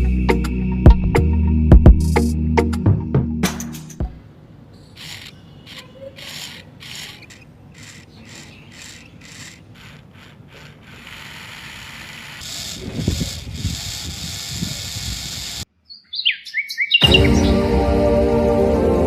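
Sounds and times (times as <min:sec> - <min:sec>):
short scraping strokes: 0:04.8 - 0:15.6.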